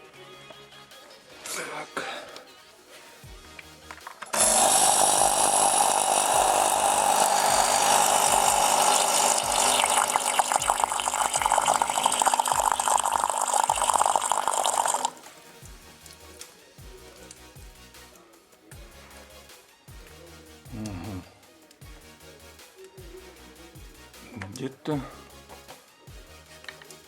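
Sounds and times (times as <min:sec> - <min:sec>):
coffee machine pump hissing: 0:04.2 - 0:15.2.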